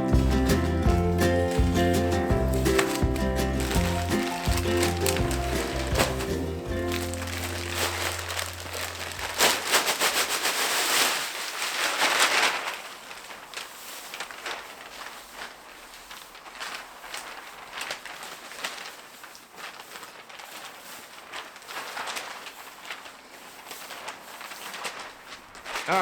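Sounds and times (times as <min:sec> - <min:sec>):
music: 0:00.0 - 0:09.6
rustling and crackling: 0:00.0 - 0:26.0.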